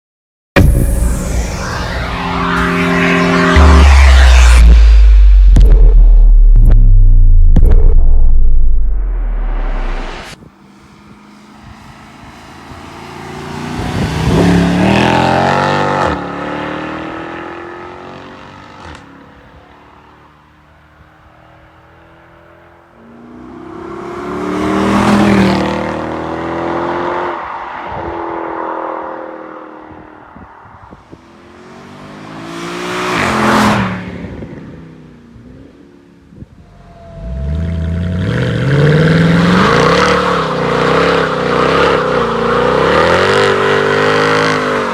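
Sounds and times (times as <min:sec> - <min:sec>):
car engine accelerating past: 0:00.6 - 0:06.8, 0:11.1 - 0:19.1, 0:23.3 - 0:30.4.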